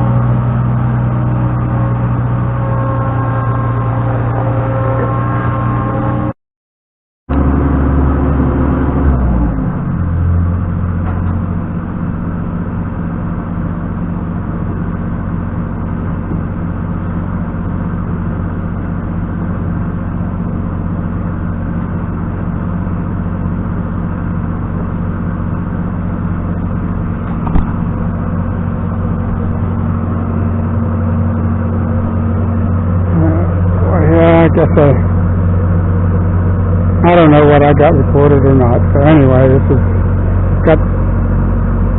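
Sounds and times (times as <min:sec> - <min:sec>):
engine running: 0:00.0 - 0:06.4, 0:07.3 - 0:41.9
sharp knock: 0:27.4 - 0:27.9.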